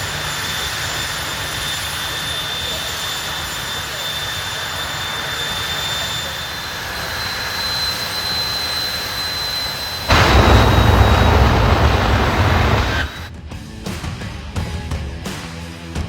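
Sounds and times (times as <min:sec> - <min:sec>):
drag racing car engine: 0:00.0 - 0:13.3
high engine whine: 0:00.0 - 0:13.3.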